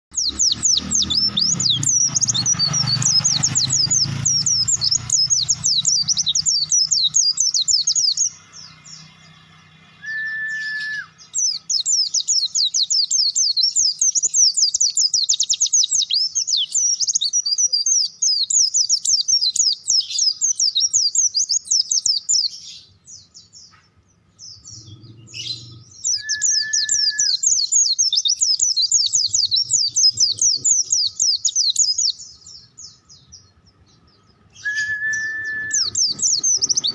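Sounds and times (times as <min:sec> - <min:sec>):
bird high twittering song: 0:00.1 - 0:36.9
short whistled tone: 0:10.0 - 0:11.2, 0:26.2 - 0:27.4, 0:34.6 - 0:36.6.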